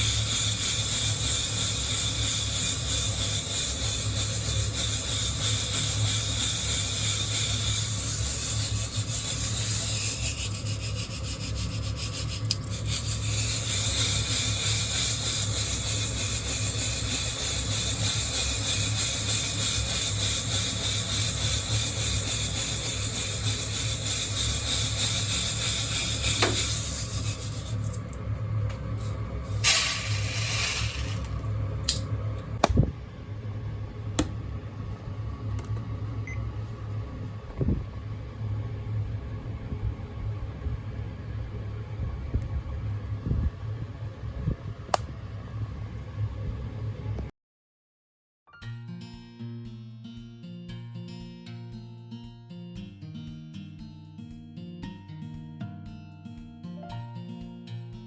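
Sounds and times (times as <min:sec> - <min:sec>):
coffee beans rattling in mesh roaster: 0:00.0 - 0:32.2
steady low hum: 0:00.0 - 0:47.3.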